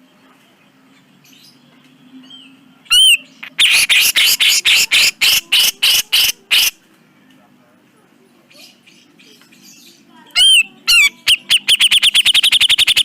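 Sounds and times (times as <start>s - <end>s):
bulbul singing: 1.3s - 6.8s, 9.0s - 13.0s.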